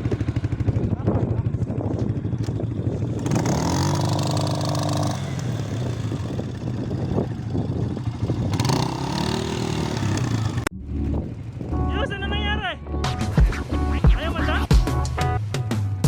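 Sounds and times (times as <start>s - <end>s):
atv engine revving: 0.0s - 12.7s.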